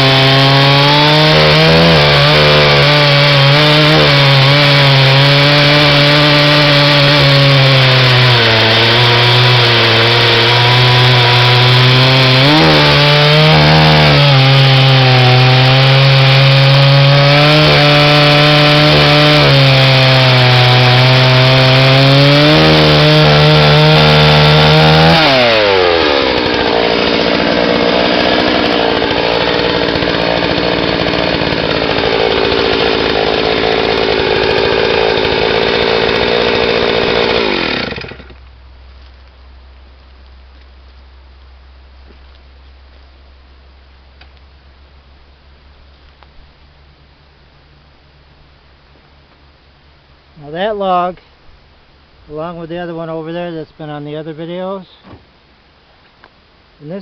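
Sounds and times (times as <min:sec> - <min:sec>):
chainsaw cutting a log: 0:00.0 - 0:38.4.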